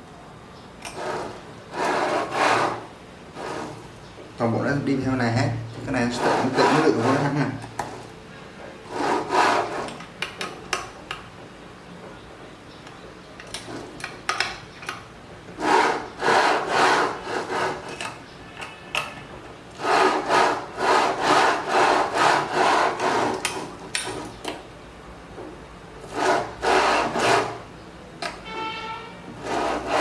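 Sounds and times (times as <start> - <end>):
rhythmic rubbing by hand: 1.0 - 3.8, 6.0 - 7.6, 15.6 - 17.9, 19.8 - 23.8, 26.1 - 27.7, 29.3 - 30.0.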